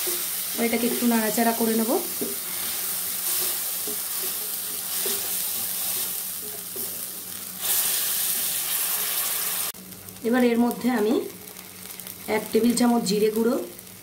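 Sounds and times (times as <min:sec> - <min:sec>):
paste sizzling in hot oil: 0:00.0 - 0:09.8.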